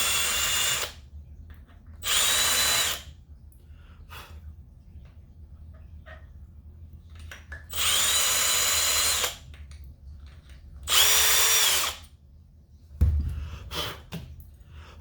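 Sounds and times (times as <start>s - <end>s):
power drill cutting metal: 7.8s - 9.4s, 10.9s - 12.0s
low thump: 13.0s - 13.6s.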